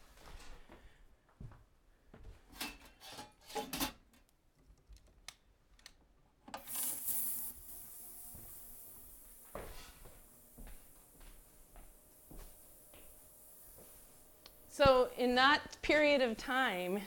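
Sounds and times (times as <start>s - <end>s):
hissing noise: 6.6s - 17.0s.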